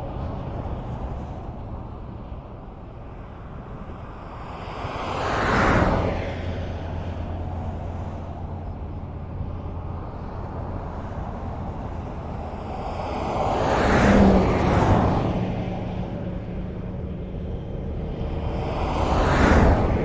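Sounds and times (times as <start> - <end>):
highway road noise rumble: 0.0 - 20.0
vehicle passing close by: 9.4 - 20.0.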